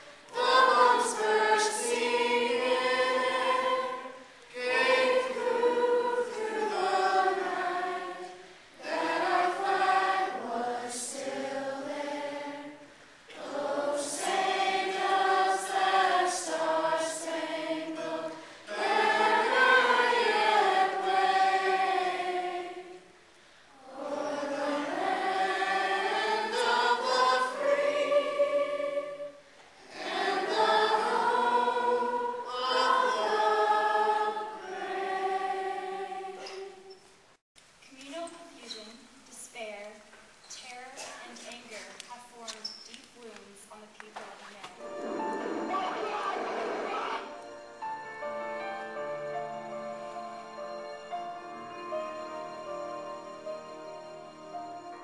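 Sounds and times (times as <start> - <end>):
choir singing: 0.0 - 23.2, 23.8 - 37.0, 44.8 - 55.0.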